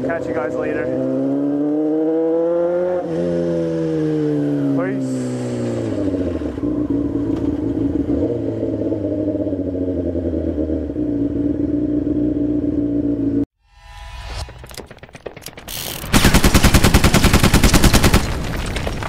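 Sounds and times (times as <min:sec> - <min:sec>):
motorcycle engine running: 0:06.4 - 0:13.5.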